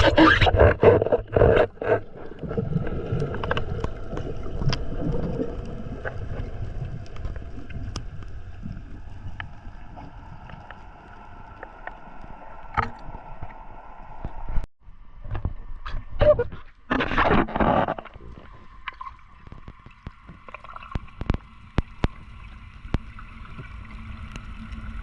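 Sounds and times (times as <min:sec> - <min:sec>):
low rumbling water: 0:00.0 - 0:25.0.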